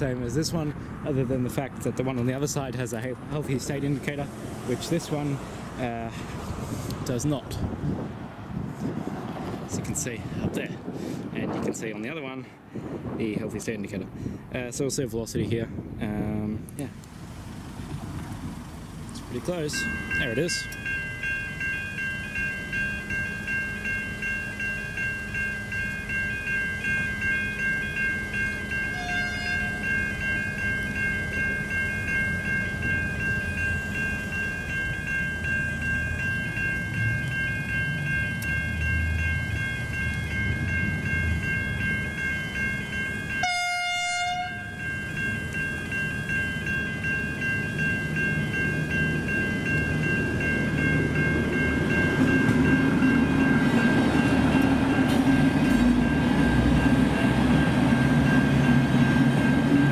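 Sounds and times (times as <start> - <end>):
train rumble: 0.0 - 59.9
level crossing bells ringing: 19.2 - 59.9
train horn: 28.9 - 29.9, 43.4 - 44.8.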